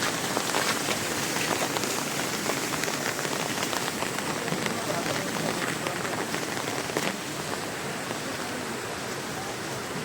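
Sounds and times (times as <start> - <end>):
heavy rain with big drops: 0.0 - 10.0.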